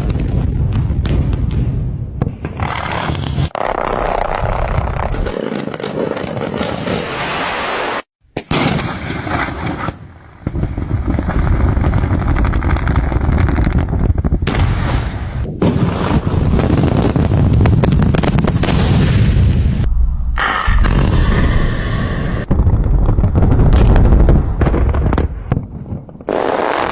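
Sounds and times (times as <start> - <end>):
rock blasting booms: 14.4 - 26.9
heavy rumble: 18.6 - 26.2.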